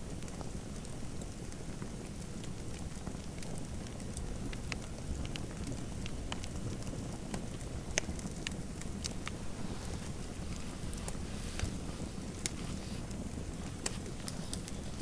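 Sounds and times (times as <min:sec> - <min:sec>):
fire low rumble: 0:00.2 - 0:15.0
fire pops and snaps: 0:03.4 - 0:15.0.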